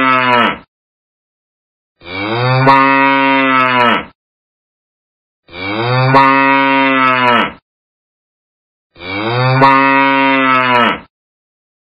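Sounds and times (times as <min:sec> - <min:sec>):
cow mooing: 0:00.0 - 0:00.7, 0:02.0 - 0:04.2, 0:05.5 - 0:07.6, 0:09.0 - 0:11.1.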